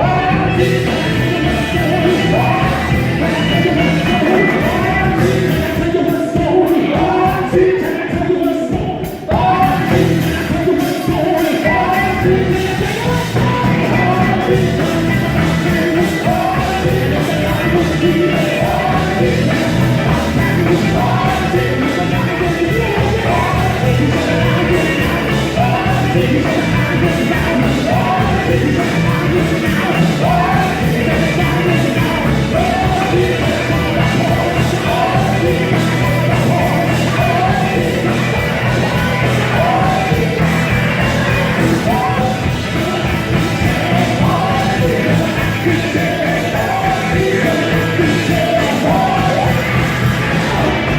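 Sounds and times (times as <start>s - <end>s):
full band playing: 0.0s - 50.9s
gospel quartet singing: 11.7s - 50.9s.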